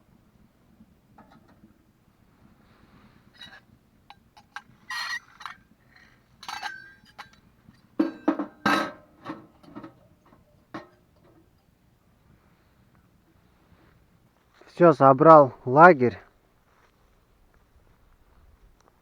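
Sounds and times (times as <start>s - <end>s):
camping gear clinking and clattering: 3.2s - 12.3s.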